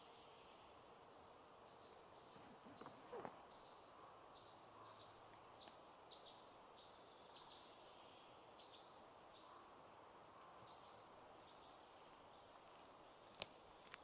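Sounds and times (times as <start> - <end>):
faint high bird chirps: 0.0 - 9.8
steady background hiss: 0.0 - 14.0.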